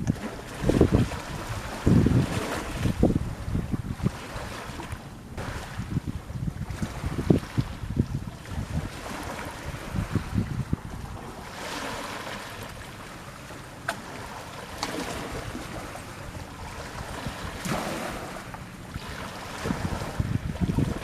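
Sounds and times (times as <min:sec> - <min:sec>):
wind on microphone: 0:00.0 - 0:12.8, 0:14.1 - 0:21.0
sea water washing in swells: 0:00.0 - 0:21.0.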